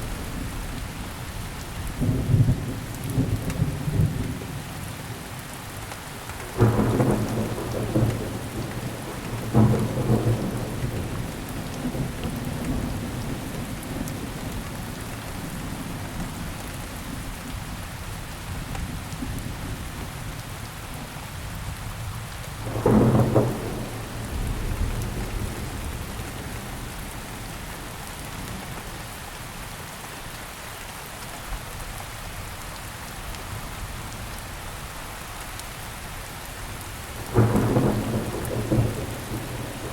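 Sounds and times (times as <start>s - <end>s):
rain falling: 0.0s - 39.9s
thunder rolling: 6.5s - 14.3s, 22.6s - 27.3s, 37.2s - 39.9s.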